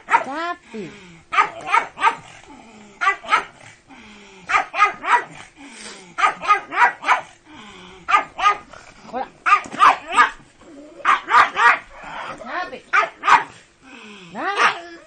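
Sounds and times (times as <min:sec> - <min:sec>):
dog barking: 0:00.0 - 0:00.4, 0:01.3 - 0:02.3, 0:03.0 - 0:03.6, 0:04.5 - 0:05.4, 0:06.2 - 0:07.4, 0:08.1 - 0:08.7, 0:09.4 - 0:10.4, 0:11.0 - 0:12.0, 0:12.9 - 0:13.6, 0:14.4 - 0:14.9.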